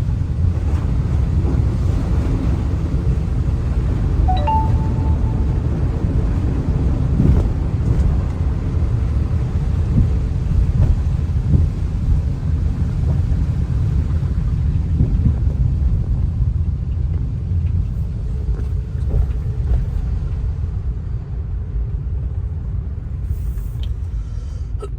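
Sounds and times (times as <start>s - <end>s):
vehicle rumbling while moving: 0.0s - 24.9s.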